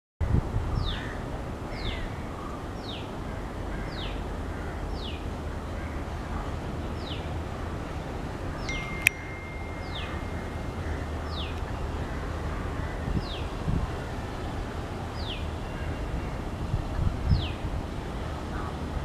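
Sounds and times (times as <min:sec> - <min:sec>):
thin steady tone: 0:08.7 - 0:12.6.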